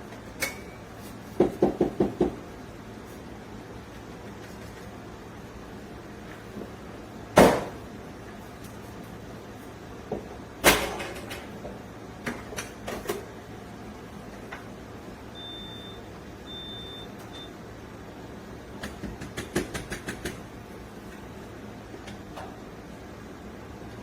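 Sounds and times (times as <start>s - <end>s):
short high-pitched beeps: 15.4s - 17.5s.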